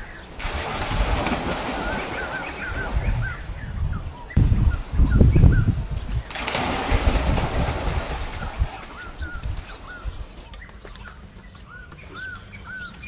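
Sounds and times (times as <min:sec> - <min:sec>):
low rumbling: 0:00.0 - 0:10.4
bird calling repeatedly: 0:01.5 - 0:06.3, 0:08.3 - 0:13.0.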